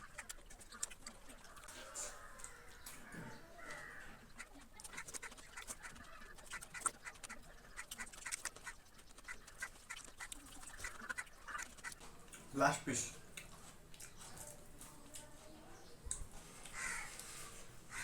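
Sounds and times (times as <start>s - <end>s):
chewing and mouth sounds: 0.0s - 3.0s, 4.4s - 12.6s, 13.2s - 15.5s.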